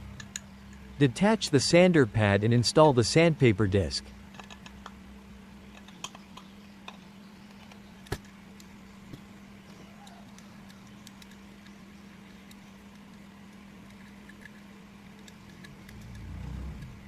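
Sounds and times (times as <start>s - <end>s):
faint steady hum: 0.0s - 17.0s
clicks and taps fitting sandpaper disc: 10.0s - 17.0s.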